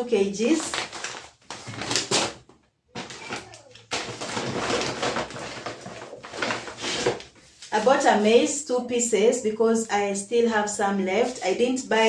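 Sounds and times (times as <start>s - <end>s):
grocery packaging rustling: 0.4s - 8.5s.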